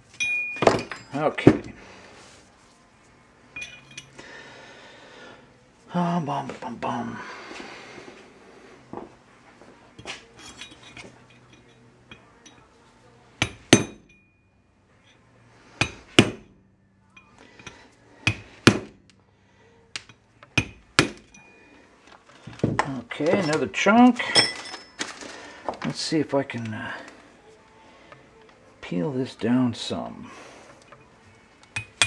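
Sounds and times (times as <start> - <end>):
hammer striking steel: 13.4 - 14.4, 15.8 - 16.6, 18.2 - 19.0, 20.0 - 21.6, 31.8 - 32.0.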